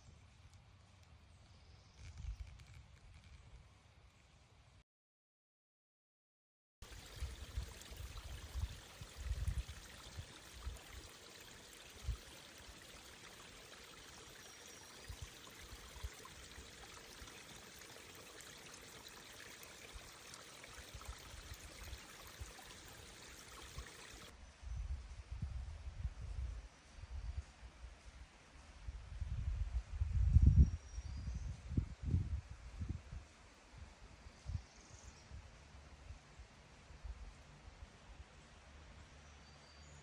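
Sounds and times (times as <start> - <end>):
running water: 6.8 - 24.3.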